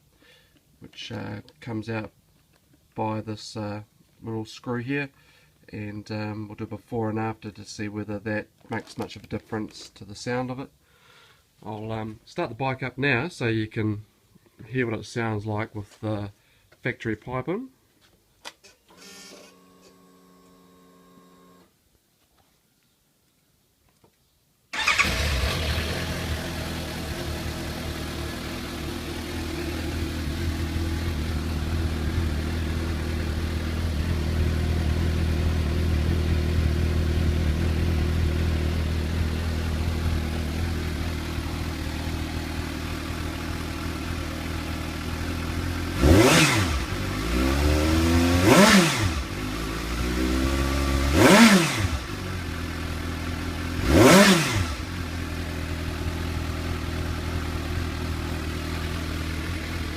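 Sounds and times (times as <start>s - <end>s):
motorcycle engine idling and revving: 24.8s - 59.9s.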